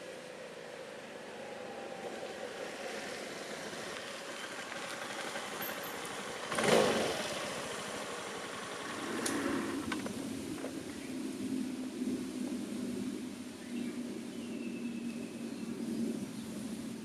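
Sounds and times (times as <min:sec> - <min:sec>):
motor scooter engine running: 0:01.9 - 0:11.0.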